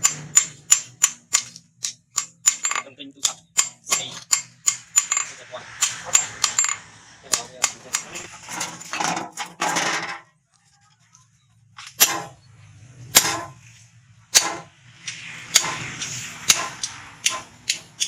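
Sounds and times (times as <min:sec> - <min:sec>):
hammer striking metal on anvil: 0:00.0 - 0:08.3, 0:11.8 - 0:12.4, 0:13.1 - 0:13.6, 0:14.3 - 0:14.7, 0:15.5 - 0:18.0.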